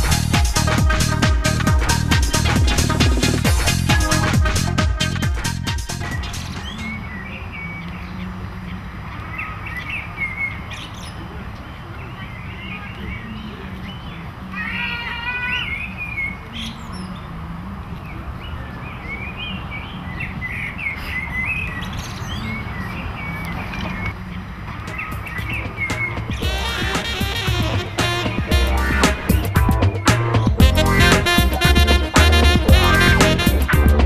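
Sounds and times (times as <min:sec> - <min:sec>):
steady low rumble: 0:00.0 - 0:06.5, 0:26.2 - 0:34.0
birds chirping and calling: 0:00.0 - 0:34.0.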